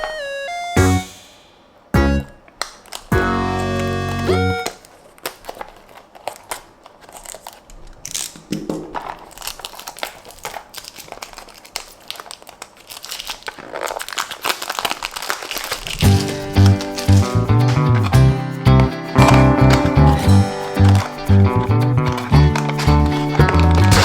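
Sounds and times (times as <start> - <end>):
packaging crinkling and rustling: 2.6 - 3.1, 4.1 - 18.4, 19.2 - 24.0
small clicks and scrapes: 4.8 - 14.6.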